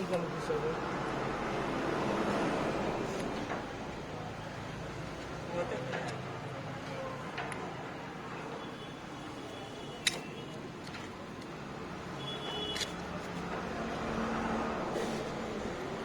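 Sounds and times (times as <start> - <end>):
metallic clicks of tools: 10.0 - 11.6.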